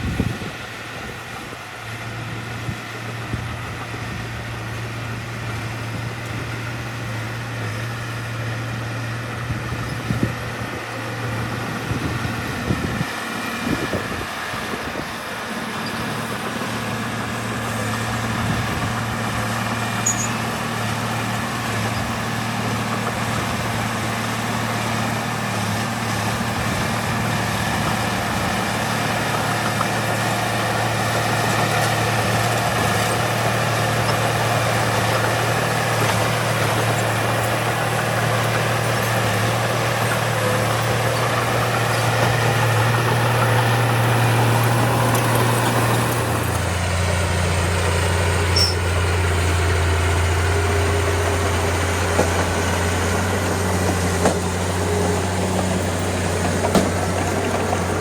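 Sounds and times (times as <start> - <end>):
diesel engine running: 0.0 - 58.0
metal clanks and knocks: 55.6 - 57.9.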